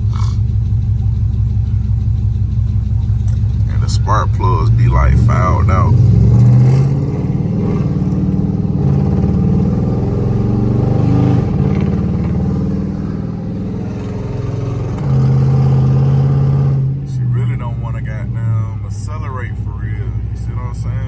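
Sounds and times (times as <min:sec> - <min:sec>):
rough misfiring car engine: 0:00.0 - 0:21.0.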